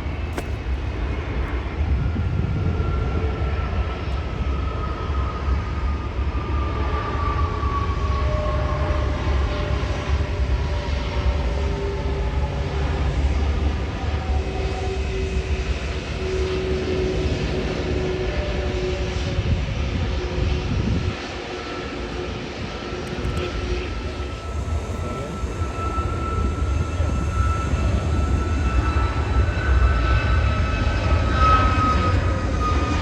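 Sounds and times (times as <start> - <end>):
high engine whine: 0.0 - 33.0
jet engines rumbling and whining: 0.0 - 33.0.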